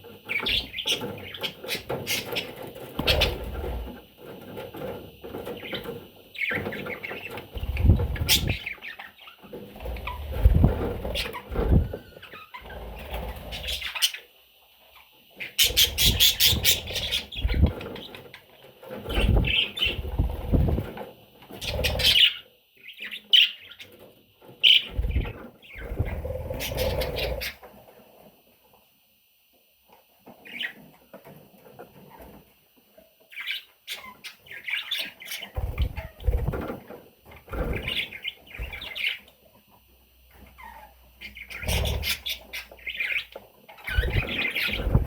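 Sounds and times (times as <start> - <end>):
bird chicks chirping: 0.0 - 27.8, 30.2 - 32.4, 33.2 - 45.0
rustling and low bumps: 9.8 - 12.0.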